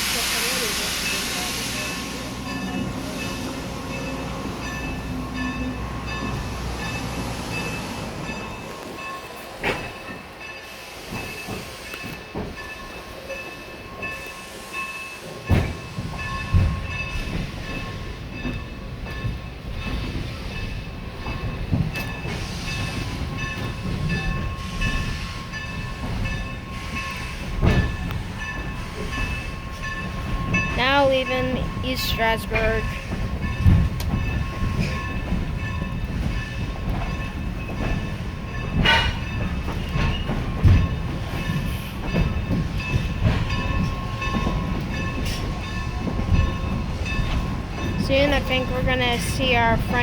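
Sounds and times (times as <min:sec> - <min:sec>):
train rumbling: 0:00.0 - 0:50.0
clanks and knocks from cars: 0:11.1 - 0:12.9, 0:15.5 - 0:30.8, 0:33.0 - 0:49.5.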